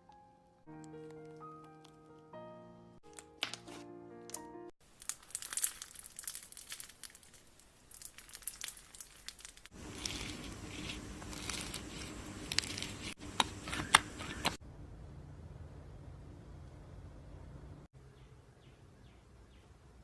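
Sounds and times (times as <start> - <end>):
slime crackling in hands: 4.9 - 13.2
low hum: 14.4 - 17.9.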